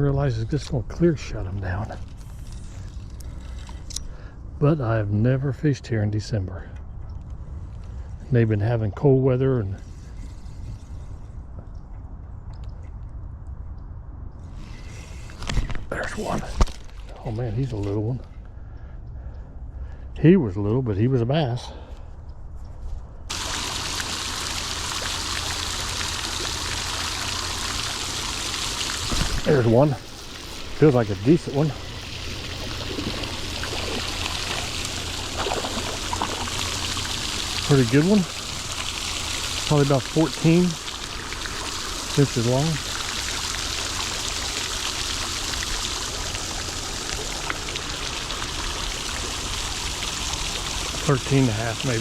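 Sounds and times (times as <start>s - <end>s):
running water rushing: 23.3s - 52.0s.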